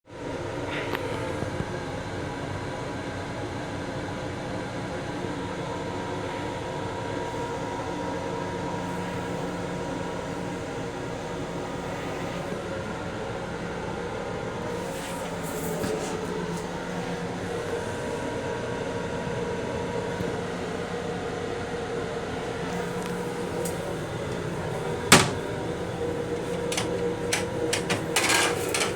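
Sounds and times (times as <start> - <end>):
train interior rumble and hum: 22.4 - 28.9.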